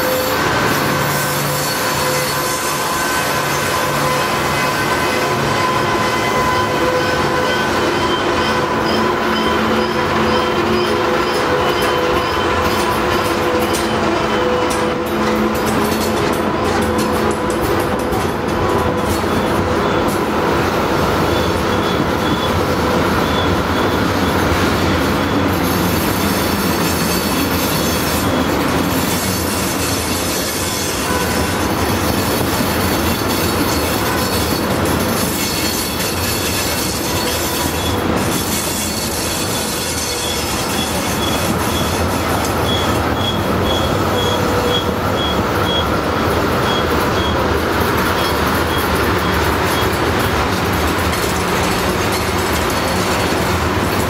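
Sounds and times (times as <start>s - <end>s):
high-pitched wheel squeal: 0.0s - 15.5s, 21.2s - 31.6s, 32.4s - 46.0s
train wheels rumbling on rail: 0.0s - 54.0s.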